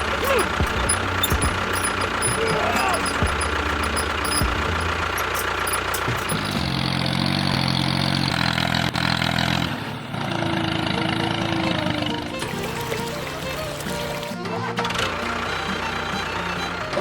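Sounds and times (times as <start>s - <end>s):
small motor running: 0.0s - 8.4s.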